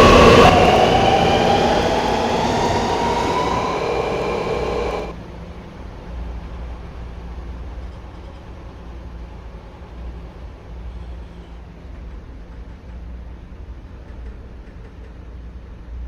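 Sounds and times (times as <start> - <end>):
train wheels rumbling on track: 0.0 - 5.2.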